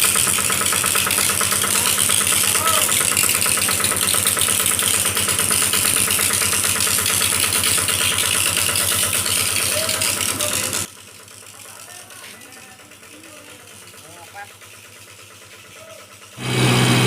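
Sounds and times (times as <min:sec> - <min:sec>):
heavy diesel engine running: 0:00.0 - 0:17.0
loud hiss: 0:16.4 - 0:17.0.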